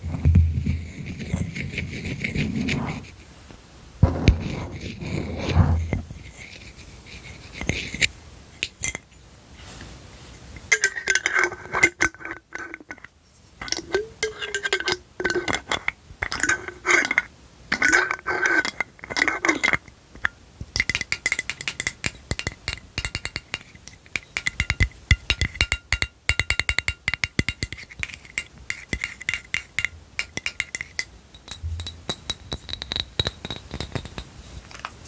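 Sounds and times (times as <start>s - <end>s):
glass object clinking and rattling: 10.7s - 19.8s, 29.0s - 34.3s.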